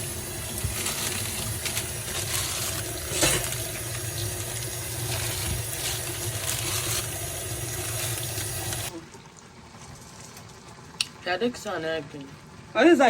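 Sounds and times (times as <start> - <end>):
tap running into sink: 0.0 - 8.9.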